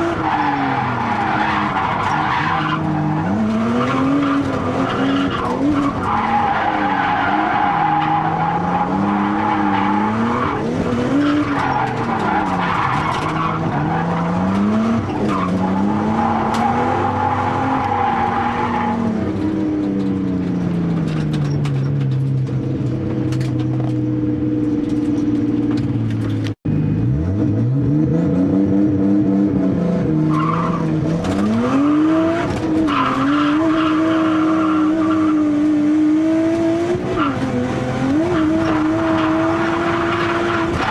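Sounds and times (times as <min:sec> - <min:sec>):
turbocharged car engine revving: 0:26.7 - 0:40.9.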